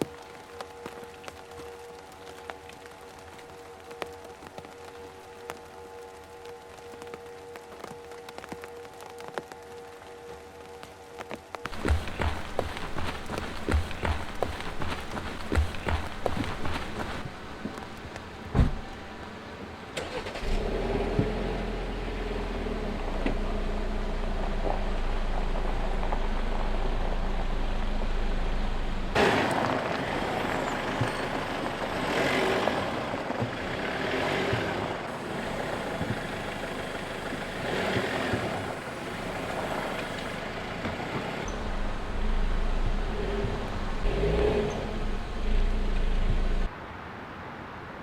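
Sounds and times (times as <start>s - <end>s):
vehicle engine humming: 10.6s - 46.7s.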